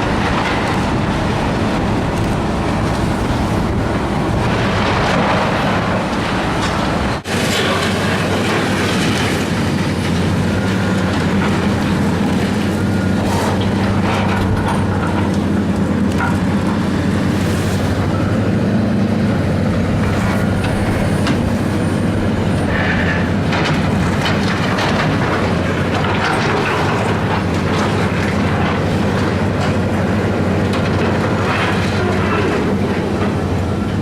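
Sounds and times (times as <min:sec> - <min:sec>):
diesel engine running: 0:00.0 - 0:34.0
metal clanking and crashing: 0:03.0 - 0:12.4.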